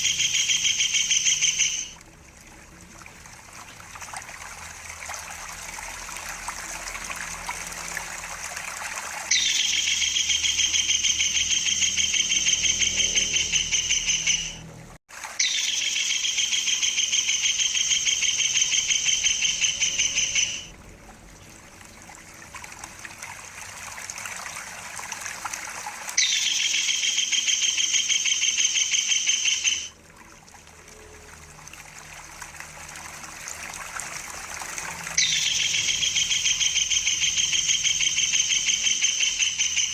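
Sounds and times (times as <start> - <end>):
kingfisher rolling trills: 0.0 - 2.0, 5.2 - 14.6, 15.4 - 20.7, 25.8 - 30.0, 34.0 - 39.9
trickle of running water: 0.0 - 13.7, 15.1 - 39.9.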